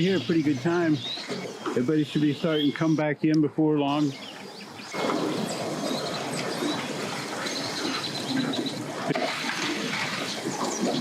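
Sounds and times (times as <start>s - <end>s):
birds chirping: 0.0s - 11.0s
steady rushing noise: 4.3s - 11.0s.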